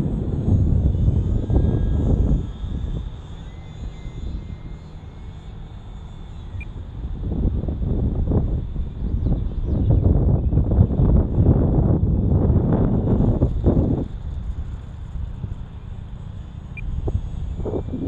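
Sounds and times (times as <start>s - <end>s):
wind buffeting microphone: 0.0s - 5.8s, 6.6s - 18.0s
model plane motor whine: 0.0s - 18.0s.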